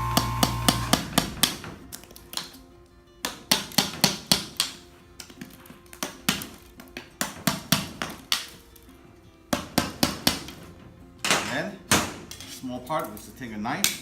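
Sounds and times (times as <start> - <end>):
hammer tapping on crust: 3.2 - 8.6, 9.5 - 10.6.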